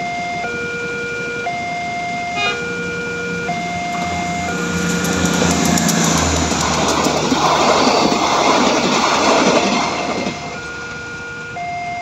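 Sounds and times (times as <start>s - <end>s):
two-tone crossing warning alarm: 0.0s - 12.0s
train wheels rumbling on rails: 3.0s - 11.6s.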